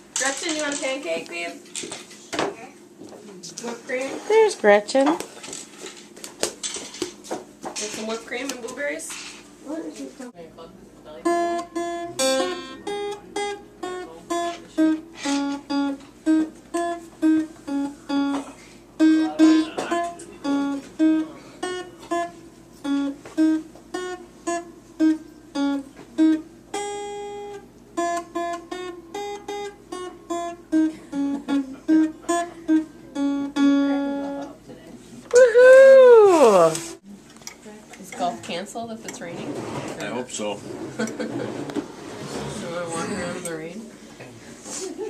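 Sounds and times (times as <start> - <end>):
acoustic guitar melody: 11.1 - 34.6, 35.3 - 37.0.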